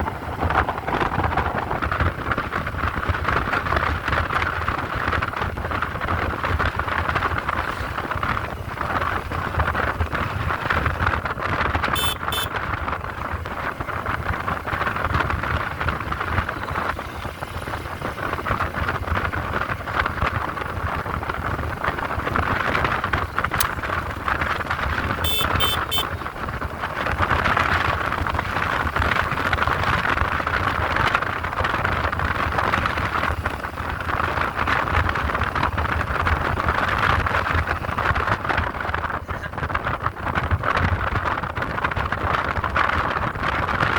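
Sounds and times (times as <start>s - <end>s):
motorcycle engine: 0.0s - 38.4s
wind and road noise: 0.0s - 43.9s
short high beeps: 12.0s - 12.5s, 25.3s - 26.1s.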